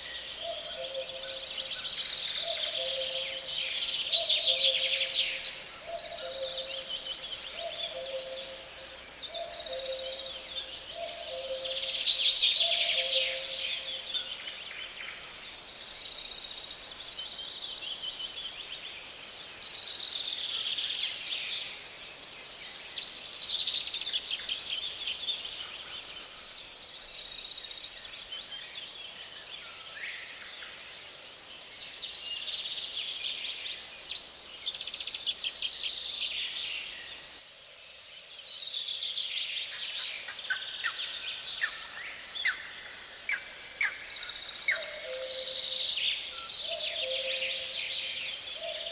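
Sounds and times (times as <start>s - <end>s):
songbirds chirping and trilling: 0.0s - 48.9s.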